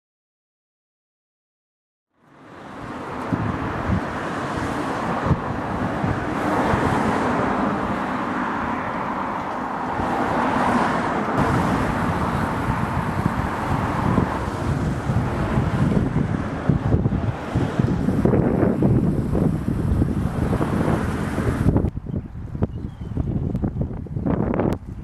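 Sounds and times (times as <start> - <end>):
sea waves washing: 2.3 - 21.8
wind buffeting microphone: 2.7 - 25.0.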